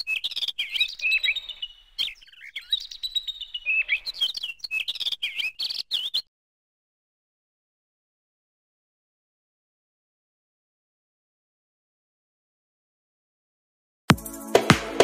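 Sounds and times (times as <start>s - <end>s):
small birds chirping: 0.0s - 6.3s.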